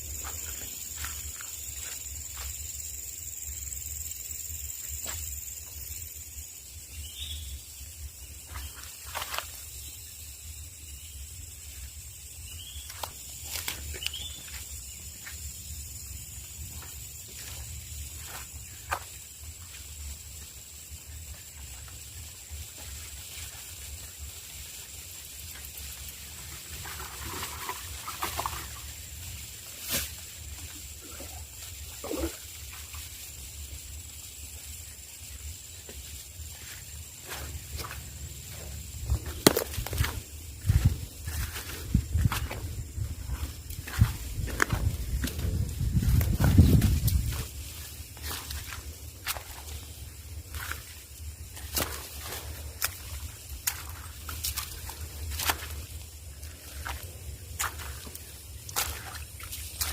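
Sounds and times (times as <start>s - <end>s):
faint chirps: 0.0s - 25.9s
high-pitched insect drone: 0.0s - 59.9s.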